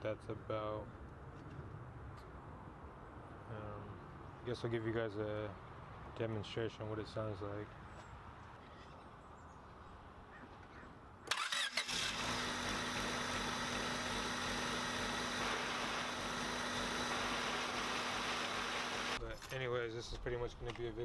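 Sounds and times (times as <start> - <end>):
car engine starting and idling: 11.3 - 19.2.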